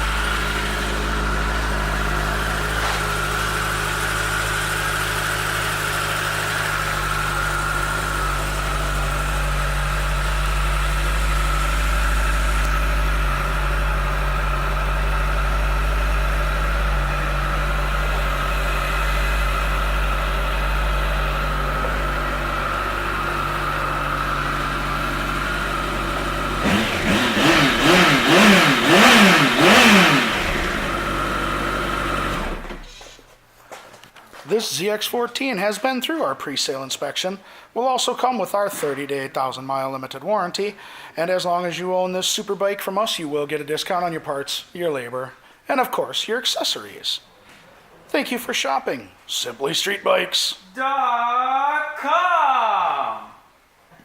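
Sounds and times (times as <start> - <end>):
motorcycle engine idling and revving: 0.0 - 33.0.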